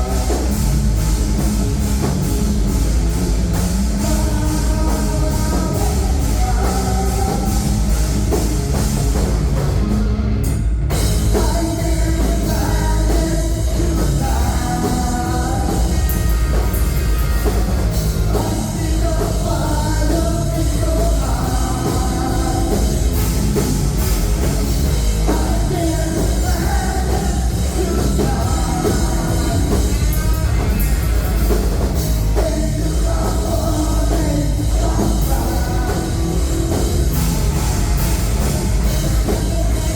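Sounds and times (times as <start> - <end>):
live rock band: 0.0 - 39.9
person singing: 3.8 - 8.0, 11.3 - 17.6, 18.2 - 23.3, 25.2 - 37.4, 38.8 - 39.9.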